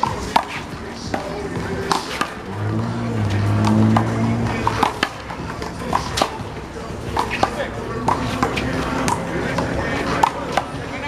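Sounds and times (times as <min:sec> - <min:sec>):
steady low tone: 0:01.6 - 0:05.8.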